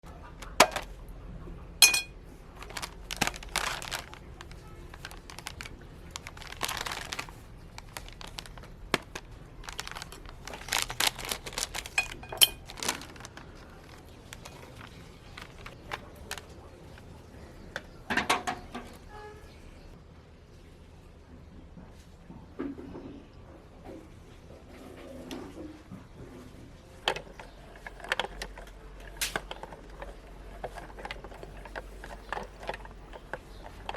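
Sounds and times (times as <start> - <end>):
packaging crinkling and tearing: 2.5 - 17.0, 27.3 - 33.9.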